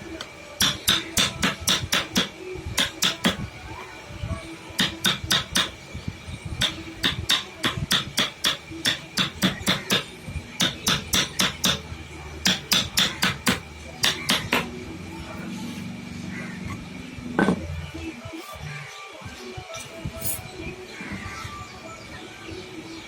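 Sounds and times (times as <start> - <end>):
hammer tapping on wood: 0.6 - 3.4, 12.5 - 14.6.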